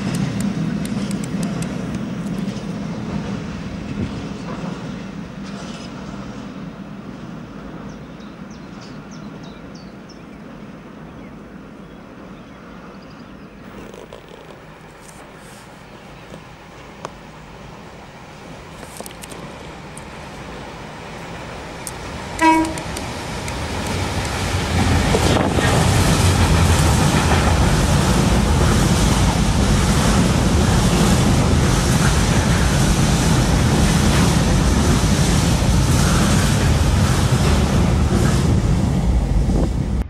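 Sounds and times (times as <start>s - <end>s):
train rumbling on rails: 0.0s - 40.0s
train horn toot: 22.4s - 22.9s.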